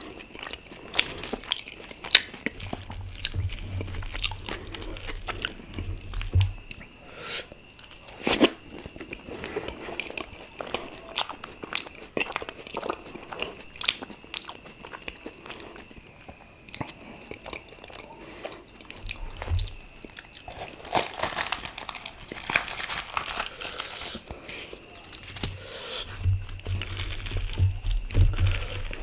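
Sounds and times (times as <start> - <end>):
person biting and chewing: 0.0 - 6.9, 18.9 - 29.0.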